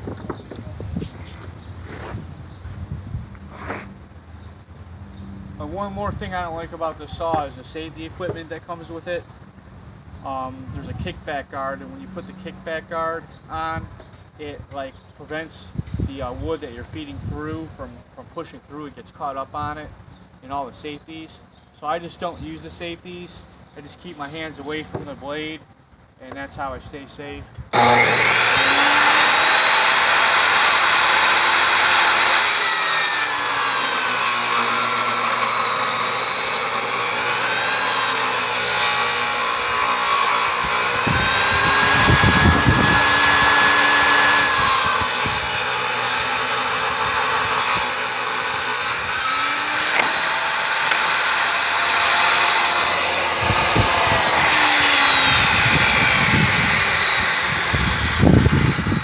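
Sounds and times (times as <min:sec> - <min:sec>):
table saw blade whining: 0:27.8 - 0:59.0.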